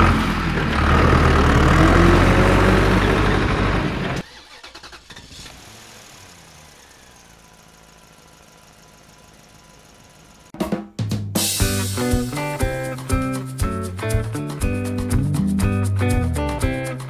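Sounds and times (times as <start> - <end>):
vehicle engine running: 0.0 - 4.3, 5.0 - 10.5.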